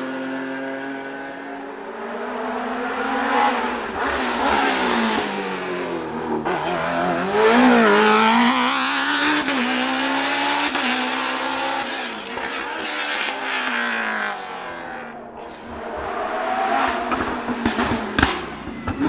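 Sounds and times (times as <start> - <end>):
race car engine revving high: 0.0 - 19.0.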